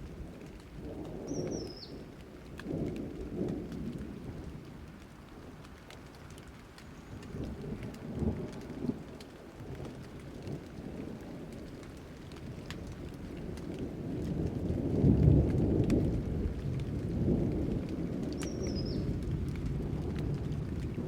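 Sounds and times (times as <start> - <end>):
rain pattering: 0.0 - 21.0
thunder rumbling: 7.2 - 21.0.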